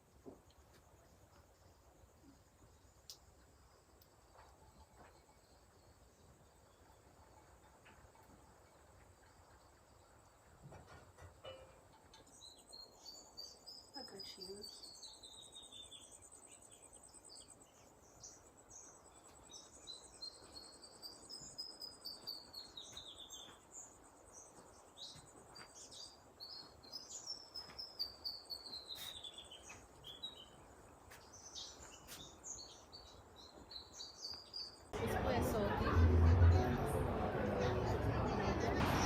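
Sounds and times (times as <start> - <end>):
bird chirps: 11.4 - 35.0.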